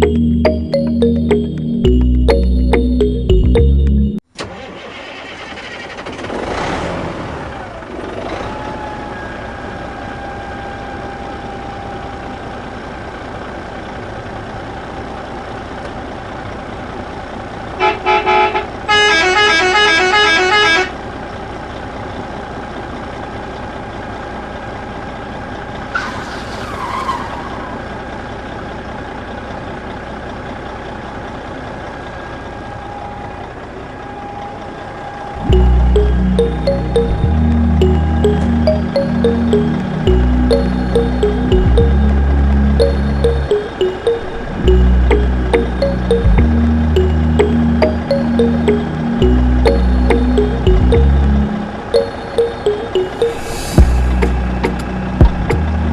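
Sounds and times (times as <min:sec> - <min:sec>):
short falling squeal: 0:25.8 - 0:28.2
vehicle engine droning: 0:34.8 - 0:43.5, 0:44.4 - 0:51.9, 0:53.8 - 0:55.9
horn toots and beeps: 0:35.4 - 0:55.5.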